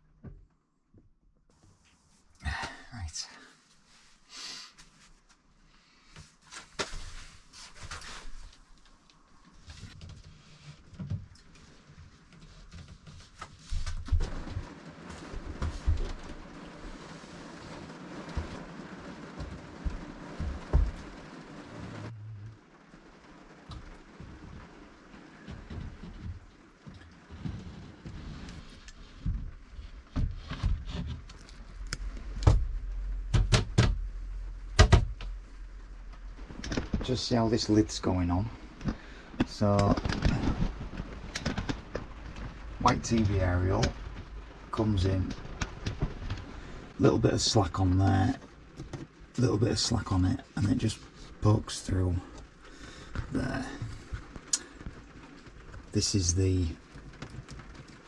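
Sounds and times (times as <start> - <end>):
handling knocks and scrapes: 25.4 - 46.6
sharp knocks: 32.4 - 34.1, 34.7 - 35.4
wooden panels knocking: 32.4 - 35.4.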